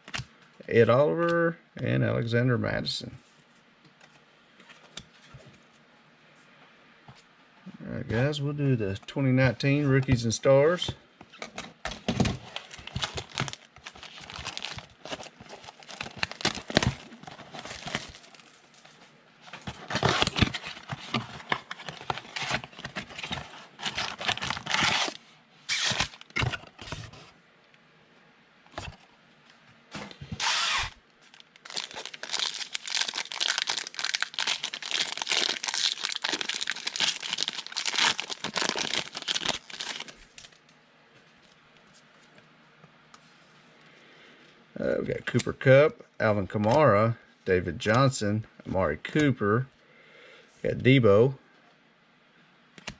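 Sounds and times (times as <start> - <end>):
plastic wrapping crinkling and tearing: 12.1 - 27.0, 30.4 - 40.6.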